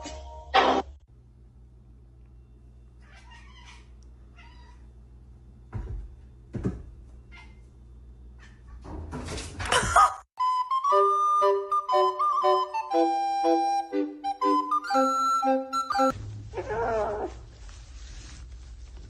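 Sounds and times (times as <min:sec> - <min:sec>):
flute melody: 0:10.4 - 0:16.1.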